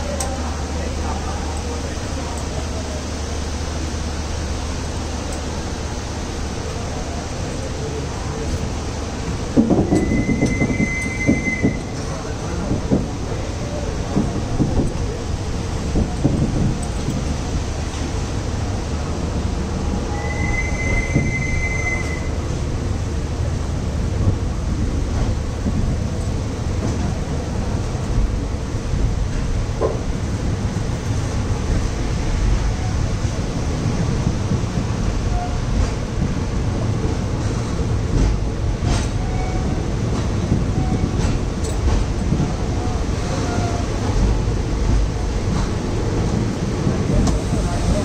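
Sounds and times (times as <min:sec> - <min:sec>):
train rumbling slowly: 0:00.0 - 0:48.0
brief high squeal: 0:20.1 - 0:22.4.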